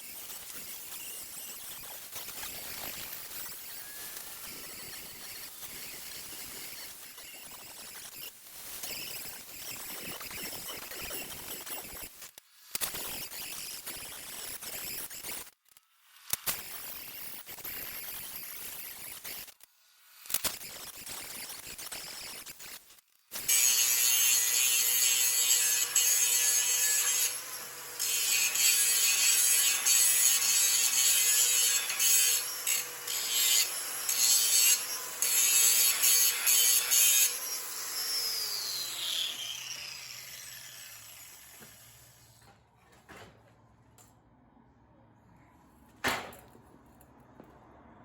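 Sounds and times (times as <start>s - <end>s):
angle grinder grinding steel: 0.0s - 22.8s, 23.4s - 42.5s.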